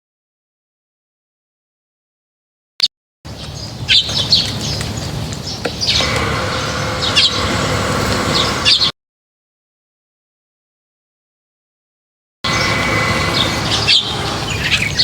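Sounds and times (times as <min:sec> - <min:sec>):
small birds chirping: 0:03.3 - 0:08.9, 0:12.5 - 0:15.0
steady hum: 0:05.0 - 0:08.9, 0:12.5 - 0:15.0.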